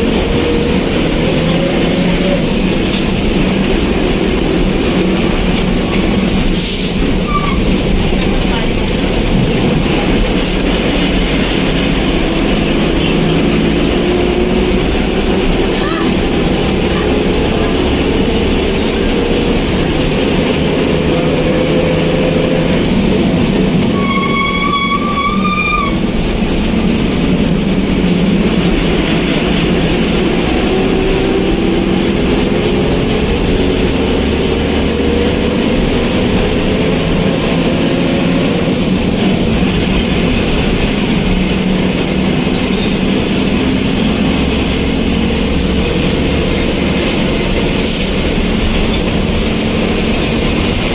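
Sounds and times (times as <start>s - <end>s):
vehicle running noise: 0.0s - 50.9s
vehicle horn: 23.9s - 26.0s.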